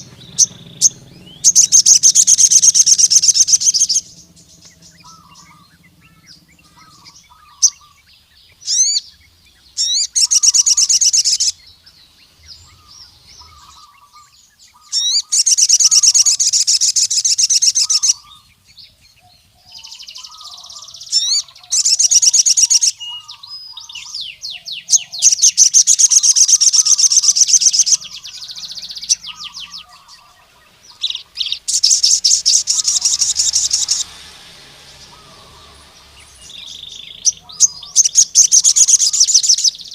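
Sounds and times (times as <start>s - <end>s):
bird singing rapid high trills: 0.0s - 39.9s
faint lower bird chirps: 0.0s - 39.9s.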